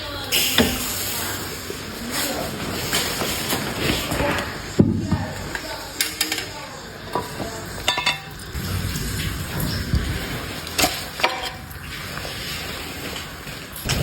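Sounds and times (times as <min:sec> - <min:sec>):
bowl clinking: 0:07.1 - 0:08.6.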